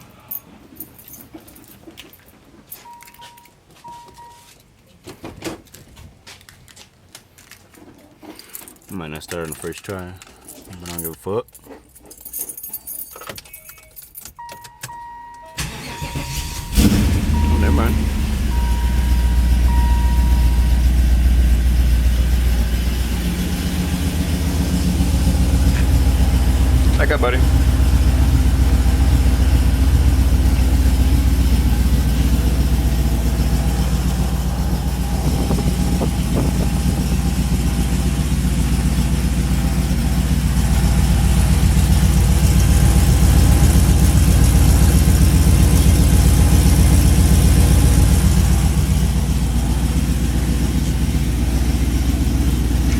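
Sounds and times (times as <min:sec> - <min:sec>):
car engine idling: 0:15.6 - 0:52.9.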